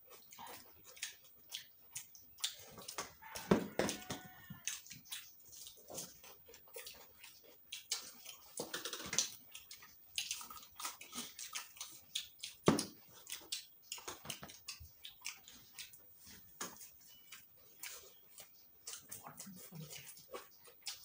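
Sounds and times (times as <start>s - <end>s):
wet chewing: 0.0s - 21.0s
lip smacks: 0.1s - 21.0s
soft mouth clicks: 6.8s - 12.6s.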